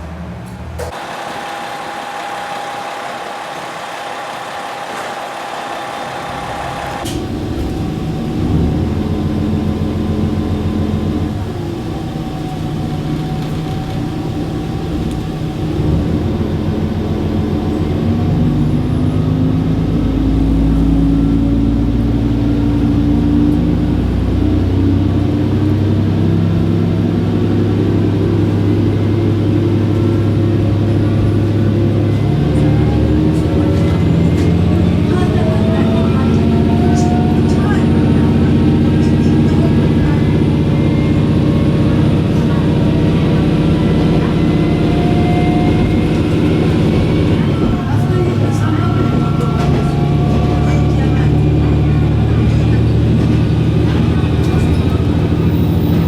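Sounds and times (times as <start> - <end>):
train running gear rumble: 0.0 - 56.0
traction motor whine rising: 0.8 - 25.0.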